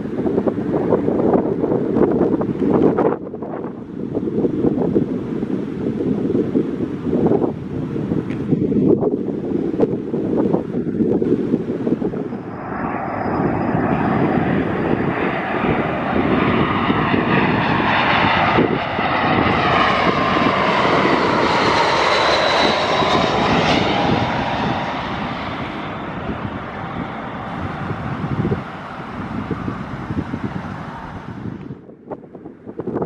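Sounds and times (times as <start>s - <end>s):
jet airliner passing: 0.0s - 33.0s
jet engine whine: 0.0s - 33.0s.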